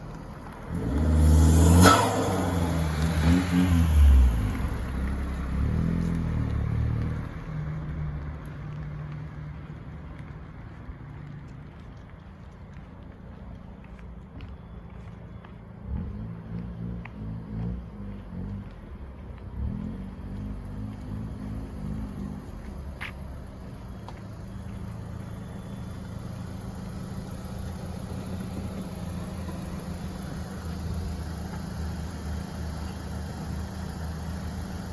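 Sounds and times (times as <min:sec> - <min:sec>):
car engine revving: 0:00.6 - 0:07.7, 0:15.9 - 0:34.9.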